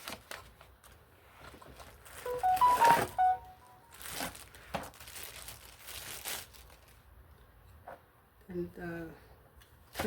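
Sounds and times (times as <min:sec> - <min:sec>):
short pure-note tune: 0:02.3 - 0:03.9.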